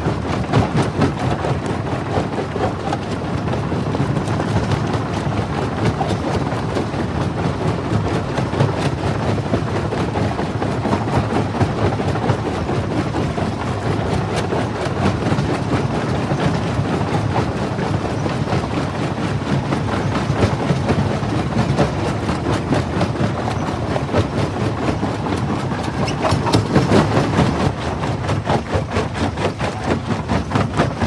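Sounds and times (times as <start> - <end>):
jaw crusher rumbling: 19.5 - 31.0.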